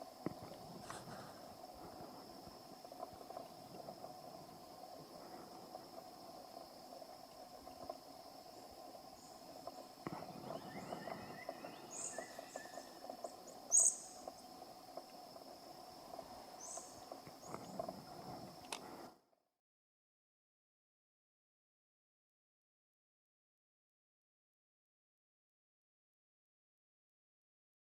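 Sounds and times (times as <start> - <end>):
whistled glides: 0.0 - 18.5
steady high hum: 0.0 - 19.2
bird chirps: 9.2 - 14.6, 16.5 - 17.8.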